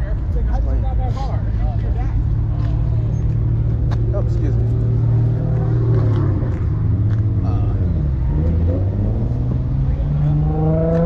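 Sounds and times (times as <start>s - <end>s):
car engine accelerating: 2.3s - 11.0s.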